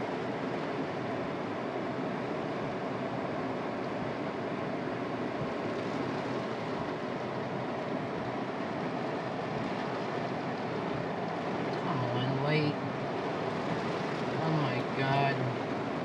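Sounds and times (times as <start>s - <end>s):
rain on a car: 0.0s - 16.0s
tyres on wet road: 0.0s - 16.0s.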